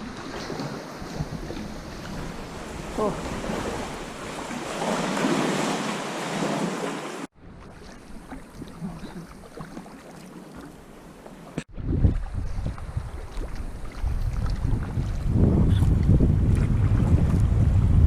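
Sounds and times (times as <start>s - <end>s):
sea waves washing: 0.0s - 11.7s
water lapping: 0.0s - 17.4s
wind buffeting microphone: 11.7s - 18.0s.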